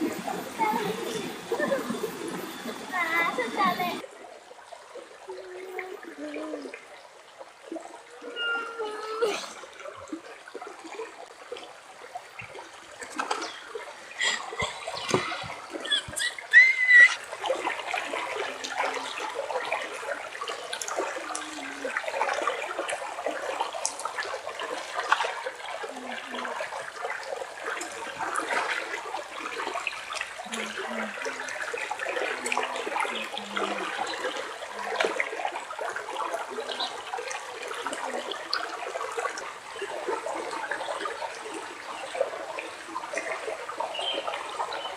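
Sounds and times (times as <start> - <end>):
water flowing: 0.0 - 44.9.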